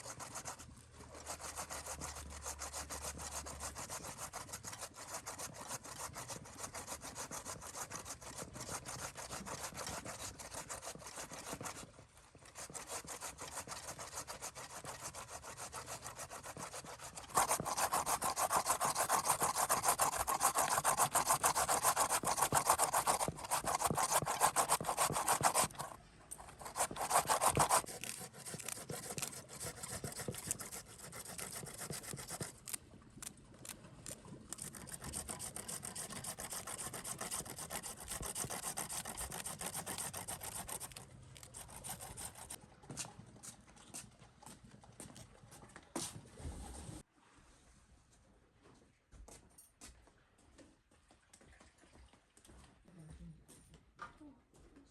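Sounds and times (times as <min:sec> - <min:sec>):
rapid rasping scraping: 0:01.2 - 0:11.8, 0:12.5 - 0:32.8, 0:34.5 - 0:42.6.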